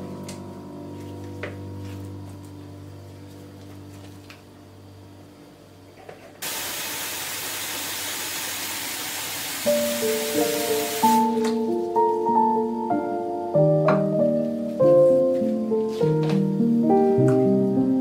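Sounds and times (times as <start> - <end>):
loud steady hiss: 6.4 - 11.6
musical notes: 9.7 - 18.0.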